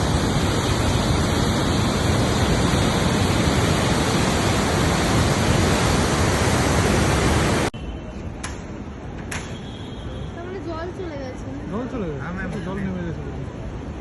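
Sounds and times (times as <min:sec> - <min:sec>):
river in flood roaring: 0:00.0 - 0:07.7.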